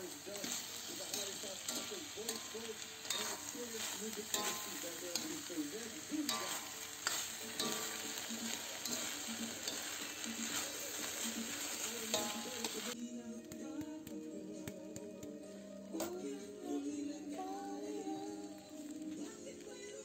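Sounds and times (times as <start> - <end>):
metal spatula scraping a wok: 0.0 - 13.0
food frying and sizzling: 0.0 - 20.0
music: 0.0 - 20.0.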